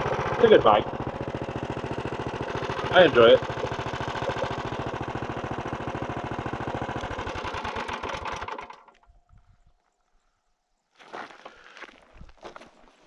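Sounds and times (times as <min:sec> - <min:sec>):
minibike engine idling: 0:00.0 - 0:09.1.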